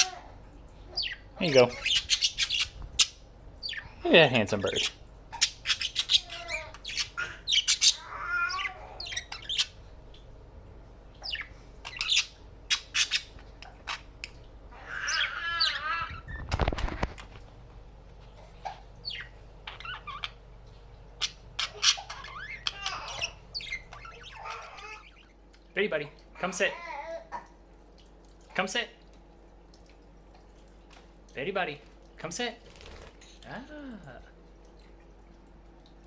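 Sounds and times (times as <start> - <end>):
budgerigars chirping and warbling: 0.9 - 9.8, 11.2 - 14.1, 14.8 - 17.1, 19.0 - 20.4, 21.2 - 25.3.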